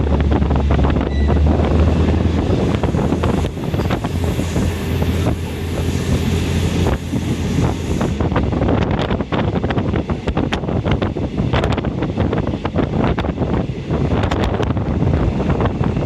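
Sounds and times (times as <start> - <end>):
train rumbling: 0.0 - 16.0
wind on microphone: 0.0 - 16.0
wheels clicking on track: 2.0 - 9.2.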